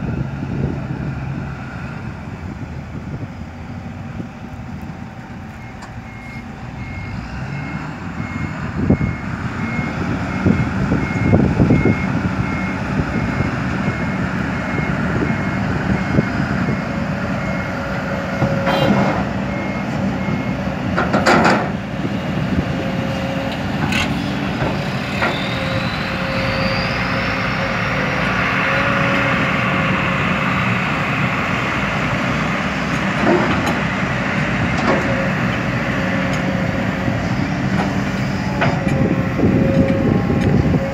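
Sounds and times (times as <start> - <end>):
heavy diesel engines running: 0.0 - 40.9
reversing alarm beeping: 5.3 - 20.7, 25.1 - 30.1, 38.2 - 40.9
sharp knocks and clunks: 21.0 - 21.8.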